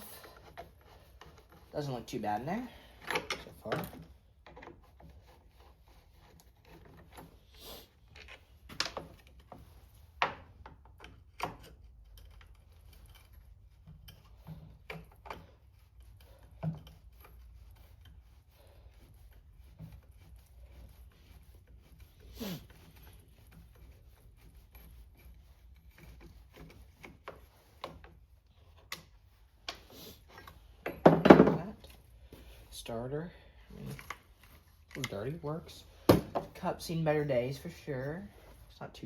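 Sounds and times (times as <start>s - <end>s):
clicks and taps of tools and parts: 8.2s - 9.3s.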